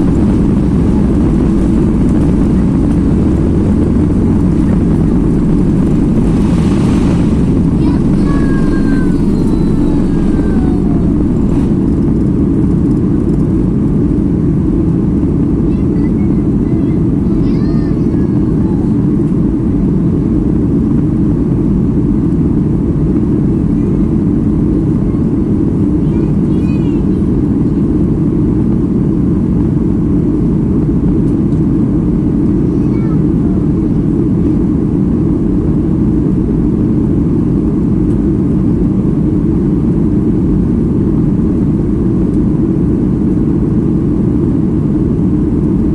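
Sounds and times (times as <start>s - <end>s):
whining tones sliding down: 0.0s - 12.4s
faint high warble: 0.0s - 12.5s
jet engines roaring: 0.0s - 17.5s
airplane cabin engine noise: 0.0s - 45.9s.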